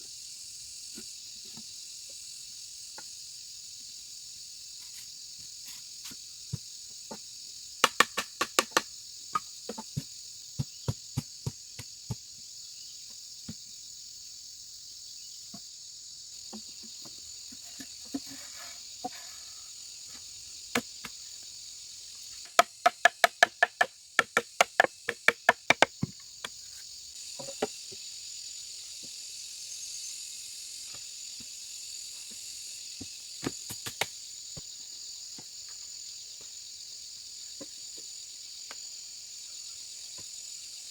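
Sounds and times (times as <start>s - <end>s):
insects chirring: 0.0s - 40.9s
sharp knocks on bamboo: 7.8s - 12.3s, 22.5s - 26.6s, 33.0s - 34.7s.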